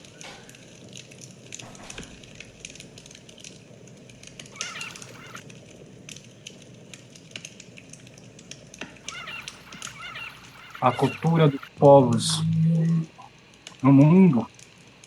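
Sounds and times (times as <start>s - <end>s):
bird warbling call: 4.5s - 5.4s, 9.0s - 11.7s.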